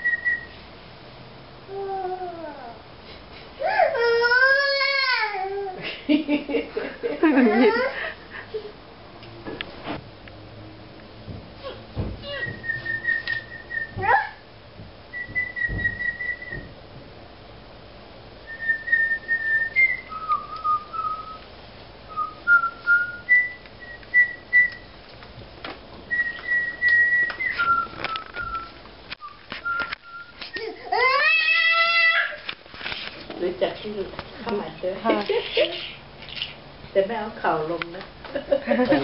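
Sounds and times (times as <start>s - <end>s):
person whistling bird calls: 12.3s - 14.0s, 15.2s - 16.7s, 26.1s - 30.8s.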